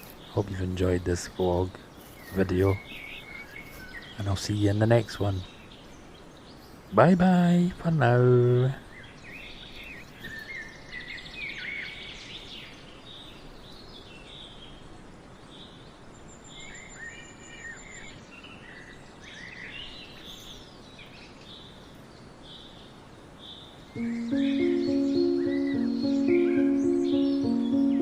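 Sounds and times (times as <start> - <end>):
small birds chirping: 0.0 - 28.0
music: 24.0 - 28.0.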